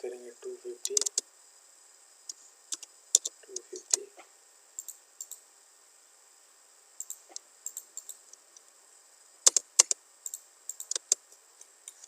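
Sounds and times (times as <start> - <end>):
keyboard typing: 0.8 - 1.2, 2.7 - 4.0, 7.0 - 8.2, 9.5 - 11.2
mouse clicking: 0.8 - 1.2, 2.3 - 4.1, 4.8 - 5.4, 7.0 - 8.7, 9.5 - 11.2.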